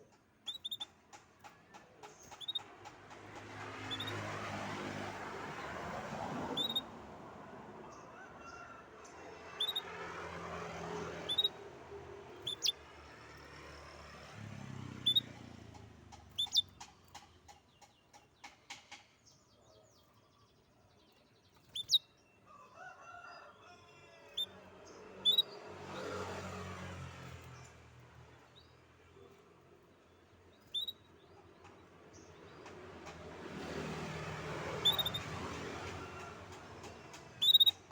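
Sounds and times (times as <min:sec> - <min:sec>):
songbird chirping: 0:00.0 - 0:04.7, 0:11.2 - 0:11.6, 0:12.4 - 0:12.8, 0:14.6 - 0:25.9, 0:27.4 - 0:35.9, 0:36.8 - 0:37.9
rapid ticking bird trill: 0:00.4 - 0:01.0, 0:02.2 - 0:02.7, 0:06.6 - 0:06.8, 0:11.3 - 0:11.6, 0:12.4 - 0:12.8, 0:15.1 - 0:15.4, 0:16.2 - 0:18.2, 0:21.7 - 0:22.1, 0:30.6 - 0:31.2, 0:34.8 - 0:35.3, 0:37.3 - 0:37.9.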